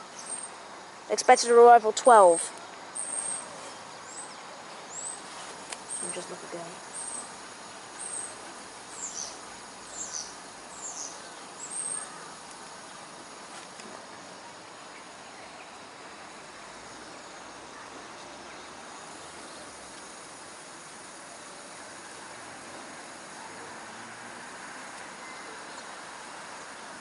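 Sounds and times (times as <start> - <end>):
outdoor background noise: 0.0 - 27.0
small bird calling: 2.1 - 7.4, 8.0 - 13.0.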